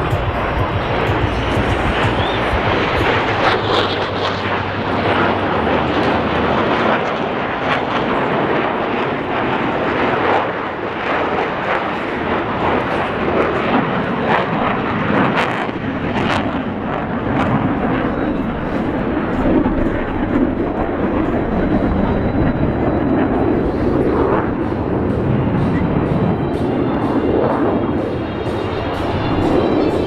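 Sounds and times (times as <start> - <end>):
jet noise rushing: 0.0 - 6.7.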